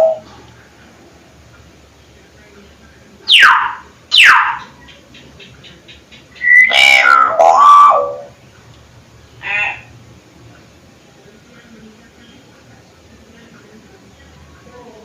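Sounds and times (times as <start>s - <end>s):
myna calling: 0.0s - 0.3s, 3.2s - 8.4s, 9.3s - 10.0s.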